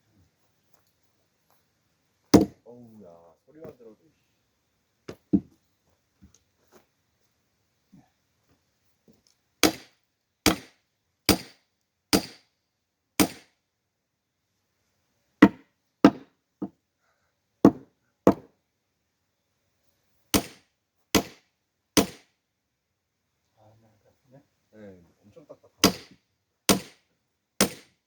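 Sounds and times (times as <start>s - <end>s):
axe splitting firewood: 2.4s - 2.6s, 9.6s - 10.7s, 11.3s - 12.4s, 13.2s - 13.4s, 15.4s - 16.3s, 17.6s - 18.5s, 20.4s - 20.6s, 21.2s - 21.4s, 22.0s - 22.2s, 25.8s - 27.0s, 27.6s - 28.0s.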